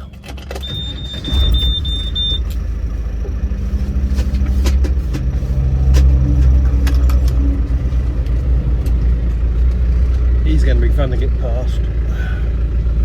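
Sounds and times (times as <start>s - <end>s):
diesel engine rumble: 0.0s - 13.0s
short high beeping: 0.6s - 2.5s.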